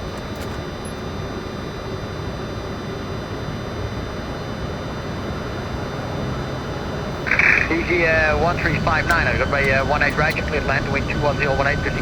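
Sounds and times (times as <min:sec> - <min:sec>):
airplane rolling on runway: 0:00.0 - 0:12.0
jet engines rumbling: 0:04.1 - 0:12.0.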